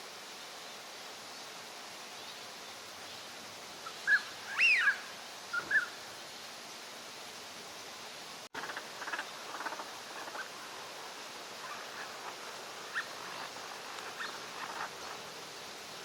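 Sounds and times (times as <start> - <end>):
ducks chattering calls: 8.6 - 10.5.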